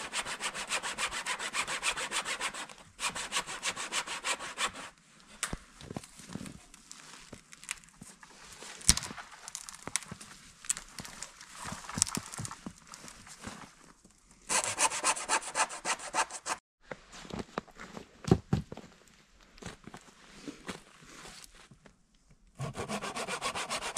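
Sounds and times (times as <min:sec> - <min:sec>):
hand saw cutting branches: 0:00.0 - 0:04.9, 0:14.5 - 0:16.6, 0:22.6 - 0:23.9
branches snapping: 0:08.8 - 0:12.5.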